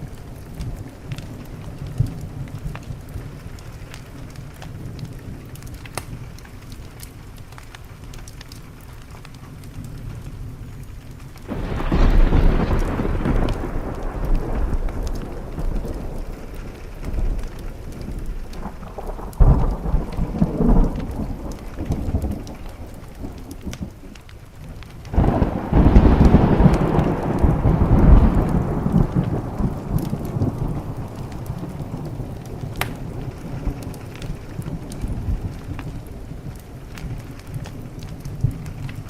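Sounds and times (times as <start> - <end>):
steady rain: 0.0 - 39.0
thunder rolling: 11.4 - 38.8.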